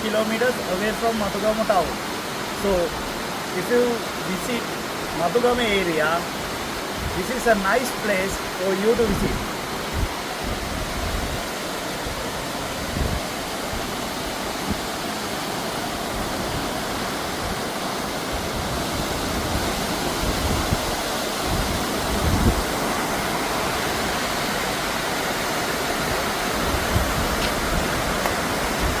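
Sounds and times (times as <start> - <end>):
waterfall roar: 0.0 - 29.0
wind bumps on microphone: 12.8 - 13.9, 18.4 - 22.9, 26.6 - 29.0.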